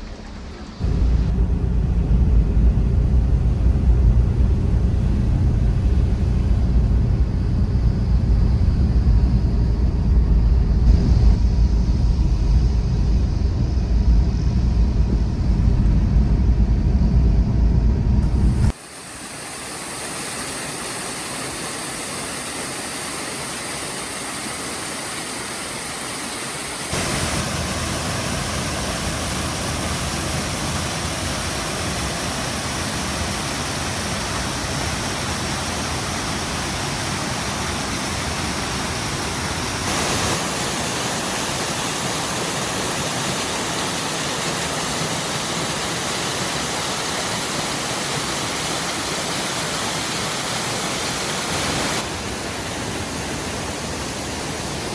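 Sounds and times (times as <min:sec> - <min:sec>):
steady rainfall: 0:18.7 - 0:54.9.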